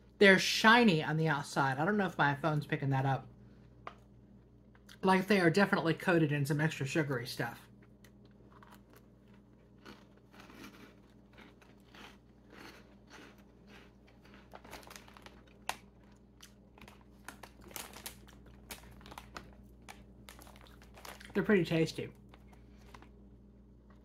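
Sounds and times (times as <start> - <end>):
crunching and chewing snack: 7.7 - 21.5, 22.1 - 24.0
foil snack bag crinkling: 7.9 - 24.0.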